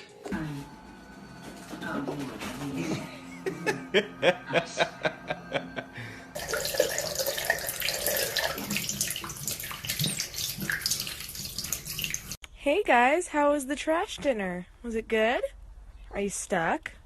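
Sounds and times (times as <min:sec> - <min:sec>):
water running and splashing: 0:06.4 - 0:12.4.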